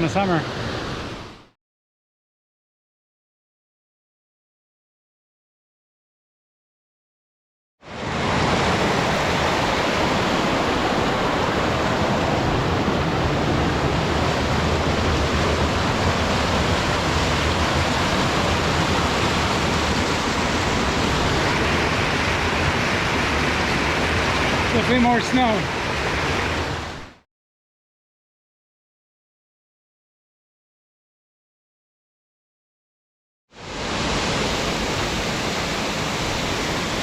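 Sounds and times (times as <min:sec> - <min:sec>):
waterfall rushing water: 0:08.0 - 0:27.1, 0:33.6 - 0:37.0.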